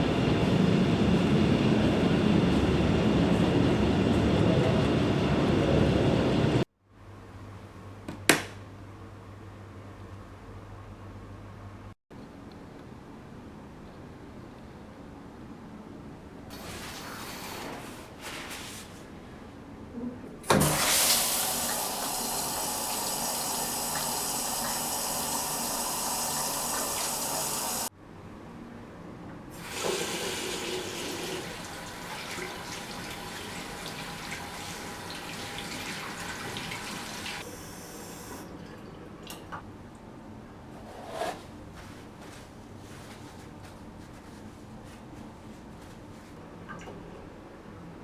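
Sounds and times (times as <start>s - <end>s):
tap water running into sink: 20.5s - 27.9s, 29.6s - 37.4s.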